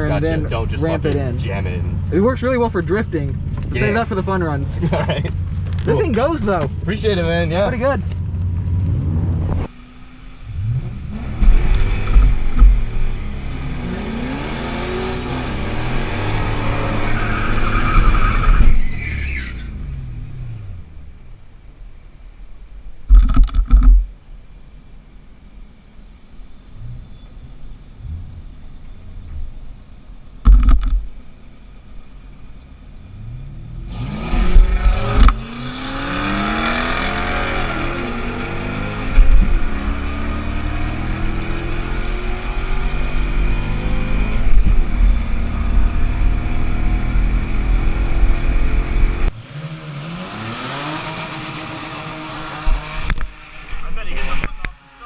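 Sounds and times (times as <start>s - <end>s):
race car engine revving: 0.0s - 20.8s, 33.1s - 55.0s
heavy low thumps: 10.6s - 13.4s, 30.4s - 31.2s, 38.8s - 40.1s.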